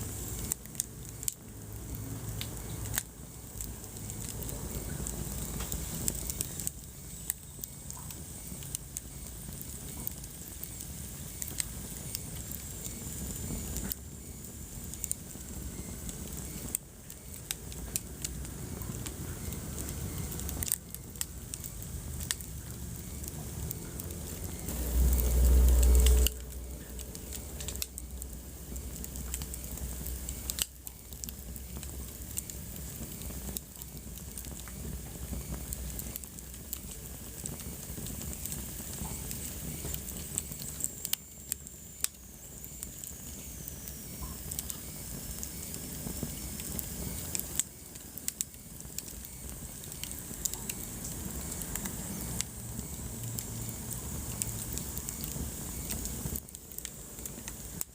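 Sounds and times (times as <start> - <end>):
low rumble of flames: 0.0 - 57.9
wood fire crackling and popping: 0.0 - 57.9
loud low rumble: 23.4 - 28.9.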